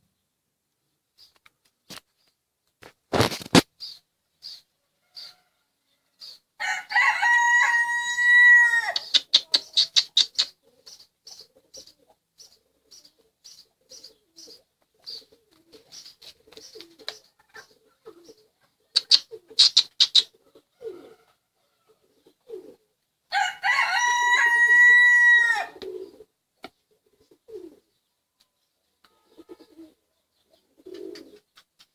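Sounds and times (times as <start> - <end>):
rooster crowing: 6.6 - 9.0, 20.8 - 21.4, 23.3 - 25.8.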